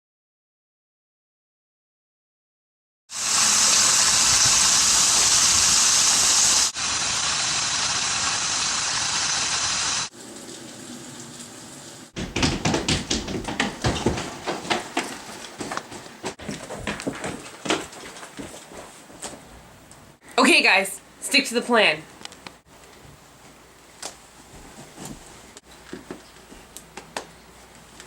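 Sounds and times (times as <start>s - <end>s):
heavy rain hiss: 3.1s - 10.1s
sharp knocks: 12.2s - 15.1s.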